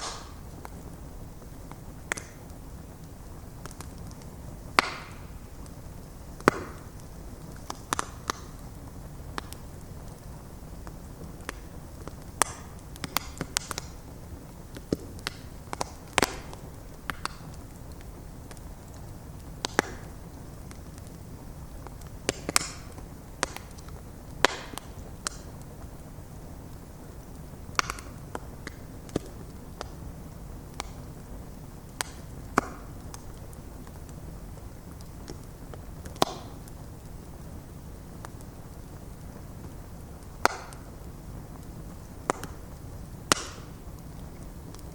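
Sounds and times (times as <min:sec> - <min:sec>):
burning logs popping and snapping: 0:00.0 - 0:44.9
low rumble of flames: 0:00.0 - 0:44.9.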